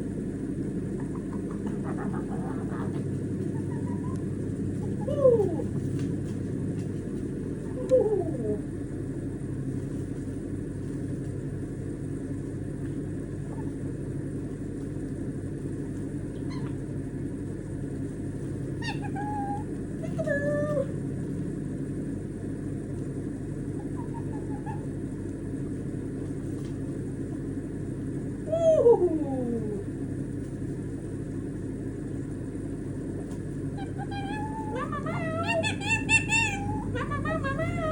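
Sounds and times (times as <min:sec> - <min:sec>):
low background rumble: 0:00.0 - 0:37.9.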